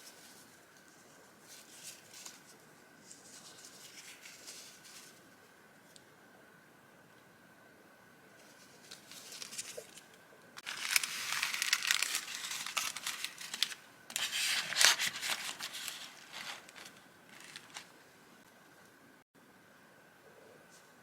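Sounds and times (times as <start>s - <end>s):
paper and packaging crinkling: 1.4s - 5.2s, 8.4s - 10.0s, 10.6s - 17.9s.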